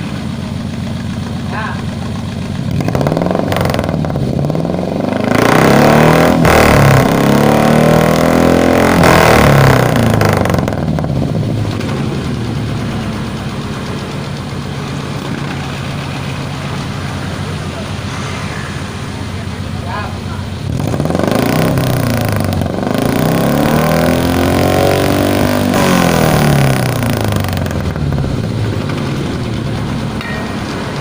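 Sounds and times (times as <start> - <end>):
car engine revving and idling: 0.0 - 31.0.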